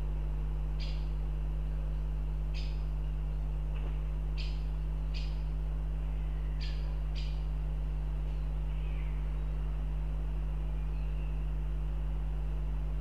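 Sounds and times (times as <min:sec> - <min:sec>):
low electrical hum: 0:00.0 - 0:13.0
bird calling: 0:00.8 - 0:01.2, 0:02.5 - 0:02.9, 0:04.3 - 0:07.6, 0:08.3 - 0:09.6.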